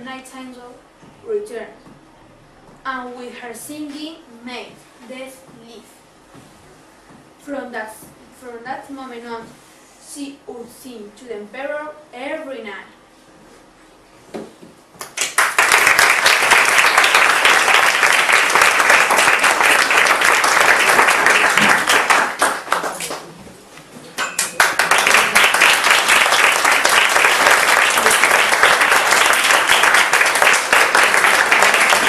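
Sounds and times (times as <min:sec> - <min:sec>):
audience applauding: 0:15.1 - 0:23.3, 0:24.4 - 0:32.0.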